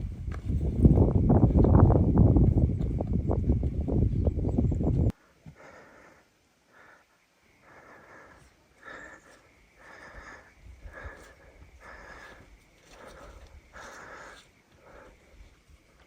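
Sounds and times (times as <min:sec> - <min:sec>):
soft rhythmic breathing: 0:04.6 - 0:16.0.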